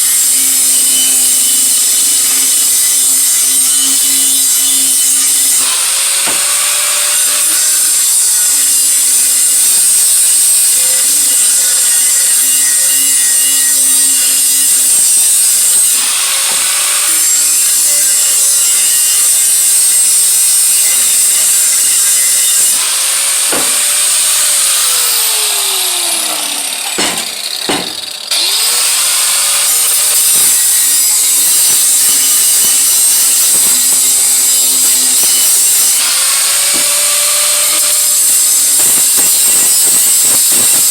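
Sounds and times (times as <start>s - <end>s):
power tool grinding metal: 0.0s - 40.9s.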